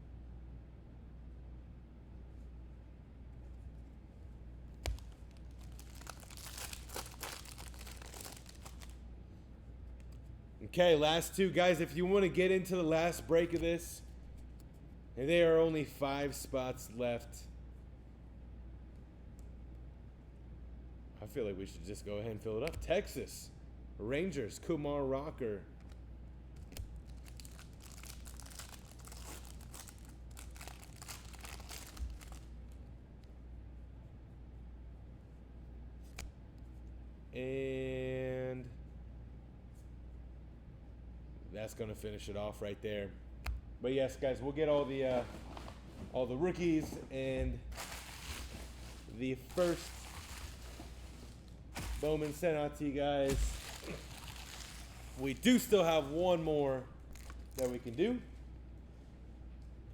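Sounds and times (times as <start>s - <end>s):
wrapper crinkling and tearing: 4.9s - 9.0s, 27.0s - 32.6s, 47.7s - 52.5s, 53.3s - 56.2s, 57.0s - 58.0s.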